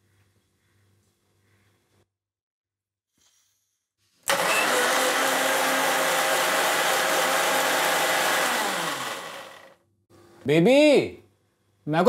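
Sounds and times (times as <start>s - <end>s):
electric mixer grinder running: 4.3s - 9.8s.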